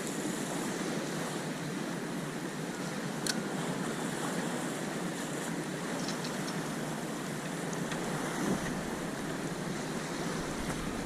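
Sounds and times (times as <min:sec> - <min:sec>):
sea waves washing: 0:00.0 - 0:11.0
wind on microphone: 0:05.8 - 0:11.0.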